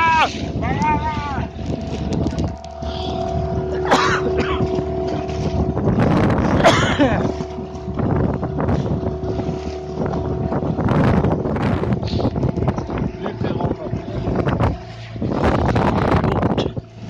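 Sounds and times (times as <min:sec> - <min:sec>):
outboard engine running: 0:00.0 - 0:17.0
wind buffeting microphone: 0:00.0 - 0:17.0.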